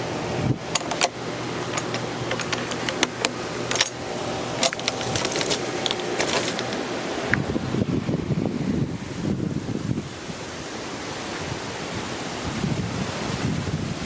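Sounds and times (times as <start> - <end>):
hurricane wind: 0.0 - 14.0
low steady hum: 0.0 - 14.0
rain: 9.0 - 14.0.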